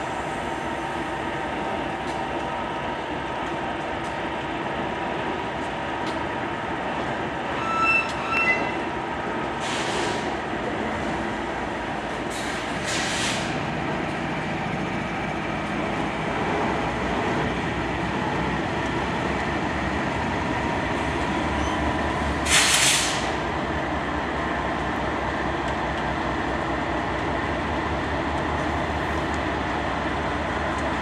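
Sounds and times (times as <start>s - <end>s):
freight train rumbling past: 0.0s - 31.0s
burst of hiss: 9.6s - 10.3s, 12.3s - 13.6s, 22.4s - 23.4s.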